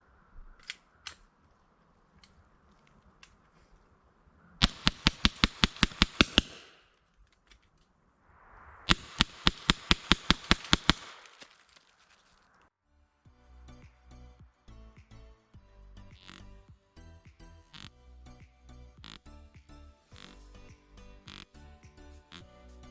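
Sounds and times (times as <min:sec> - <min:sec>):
air pistol shots: 0:04.6 - 0:07.0, 0:08.9 - 0:11.5.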